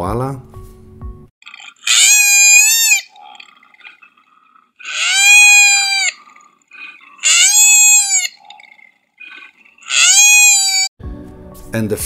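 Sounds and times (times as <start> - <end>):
koala screaming: 1.6 - 10.9.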